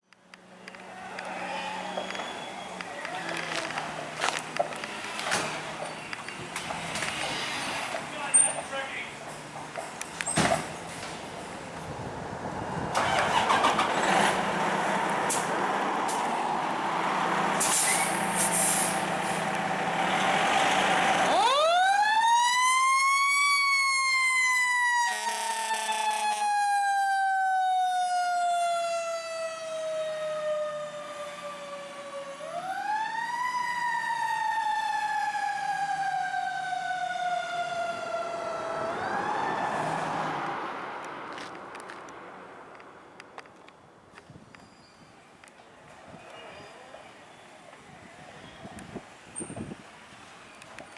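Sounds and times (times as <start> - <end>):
heavy diesel engine: 10.8 - 21.4.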